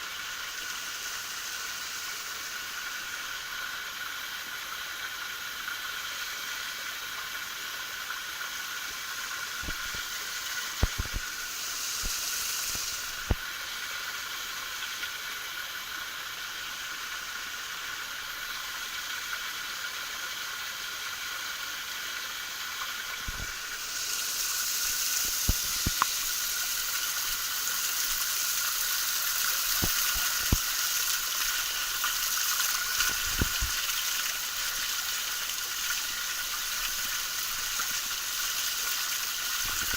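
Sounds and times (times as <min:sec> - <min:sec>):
waterfall splashing: 0:23.2 - 0:39.9.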